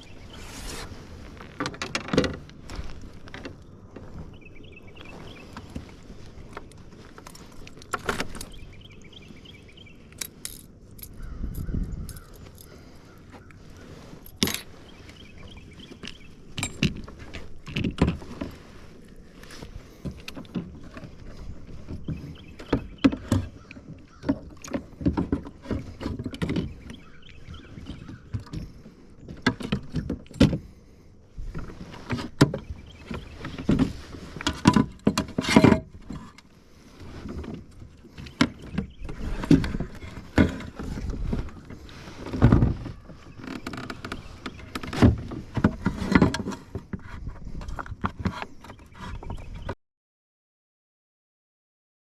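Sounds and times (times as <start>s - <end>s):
fishing gear clicking and rattling: 1.2s - 4.3s, 5.2s - 9.0s, 10.0s - 27.0s, 33.0s - 49.0s.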